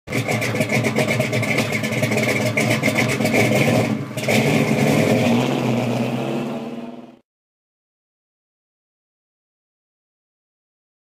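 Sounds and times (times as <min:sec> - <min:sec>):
car engine pulsing exhaust: 0:00.1 - 0:07.2.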